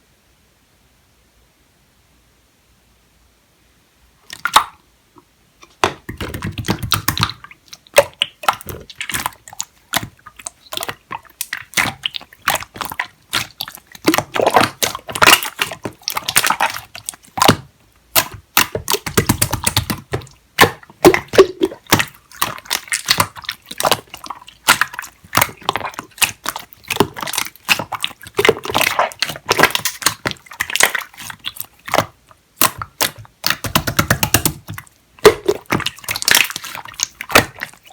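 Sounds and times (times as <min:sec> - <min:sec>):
slime squished by hand: 0:05.6 - 0:37.9.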